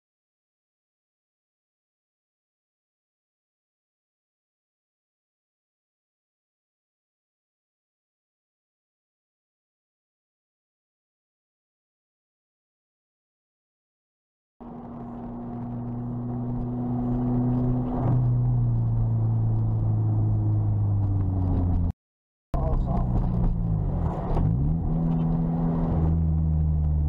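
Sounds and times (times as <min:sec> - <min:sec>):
sports car engine accelerating: 0:14.6 - 0:21.9, 0:22.6 - 0:27.0.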